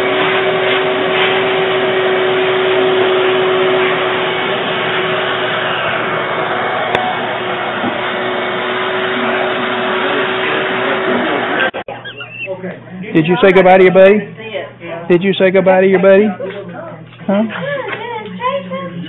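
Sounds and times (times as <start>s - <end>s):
electric blower motor whirring: 0.0s - 11.8s.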